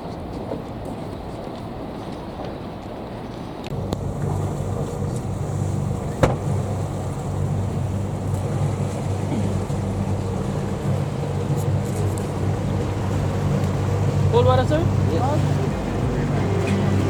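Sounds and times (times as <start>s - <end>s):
boat engine droning: 3.7s - 17.0s
sharp knock: 6.2s - 6.5s.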